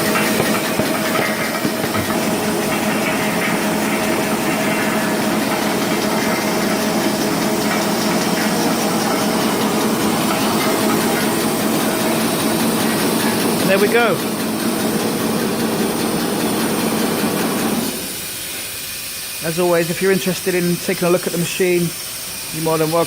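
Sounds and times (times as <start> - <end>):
wrapping machine running: 0.0 - 18.3.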